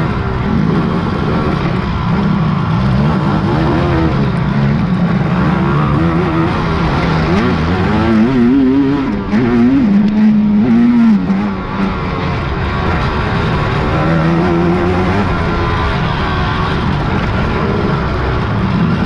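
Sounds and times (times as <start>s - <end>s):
quad engines revving: 0.0s - 19.0s.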